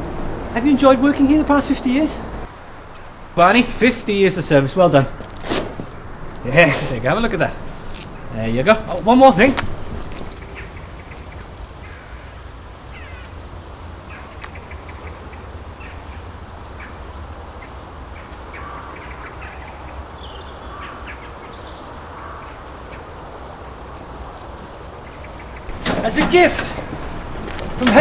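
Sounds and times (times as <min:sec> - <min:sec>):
short bird calls: 0:10.3 - 0:13.4, 0:17.6 - 0:23.1.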